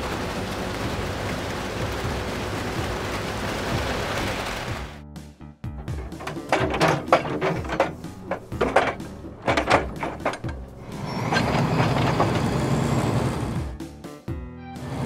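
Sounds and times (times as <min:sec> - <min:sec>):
mechanical knocks and clanks: 0:05.7 - 0:13.6.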